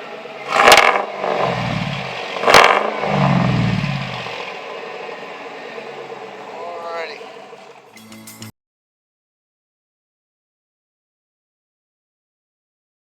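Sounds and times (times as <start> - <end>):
truck engine revving: 0.0 - 8.0.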